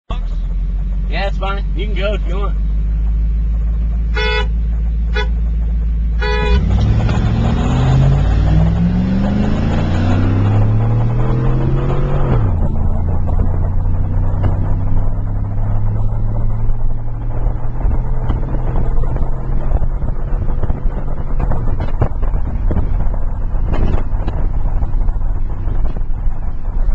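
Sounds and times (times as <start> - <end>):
truck engine accelerating: 0.1 - 26.9
horn toots: 4.1 - 5.4, 6.2 - 7.2.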